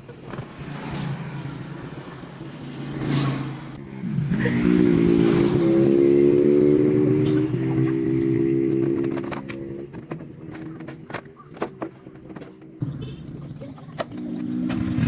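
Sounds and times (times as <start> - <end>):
engine starting and running: 3.0 - 15.0.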